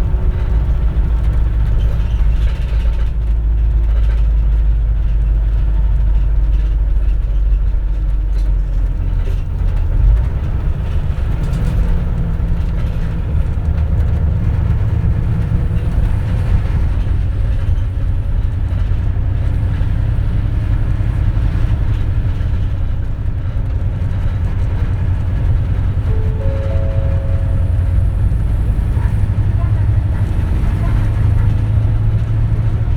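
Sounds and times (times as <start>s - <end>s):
bus engine rumbling: 0.0s - 32.9s
rising tones: 26.1s - 29.4s.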